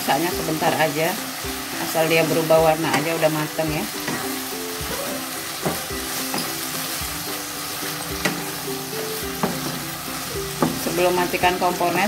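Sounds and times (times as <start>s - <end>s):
greens sizzling in a wok: 0.0s - 12.0s
spatula knocking against pan: 5.6s - 6.5s, 9.3s - 9.8s, 10.5s - 10.9s.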